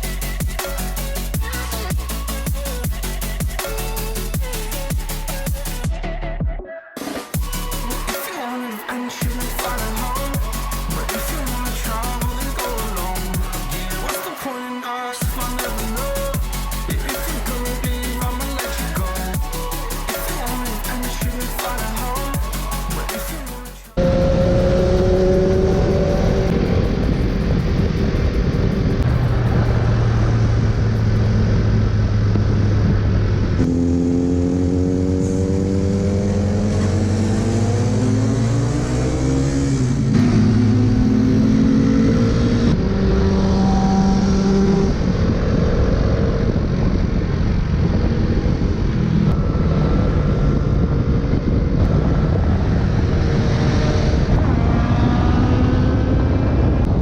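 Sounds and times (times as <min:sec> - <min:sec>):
motorcycle engines accelerating: 0:24.0 - 0:32.9, 0:33.6 - 0:46.5, 0:47.6 - 0:56.9.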